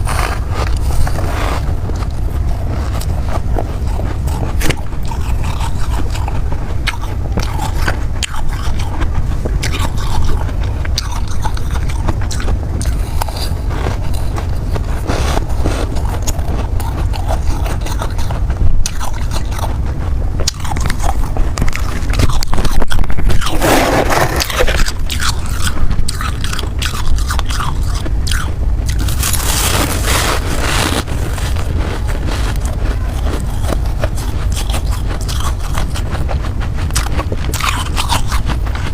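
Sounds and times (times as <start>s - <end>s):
ice crunching being chewed: 0.0s - 38.9s
scraping: 19.5s - 27.0s, 28.2s - 38.9s.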